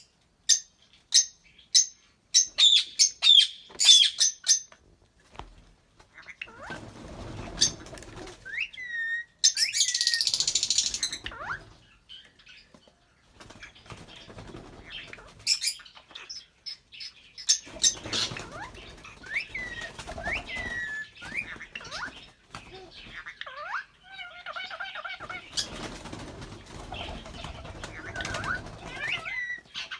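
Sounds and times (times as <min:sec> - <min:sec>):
lovebirds chirping: 0:00.0 - 0:04.8, 0:06.1 - 0:29.9
wing flapping: 0:06.5 - 0:08.6, 0:13.4 - 0:15.6, 0:17.6 - 0:23.2, 0:25.2 - 0:29.7.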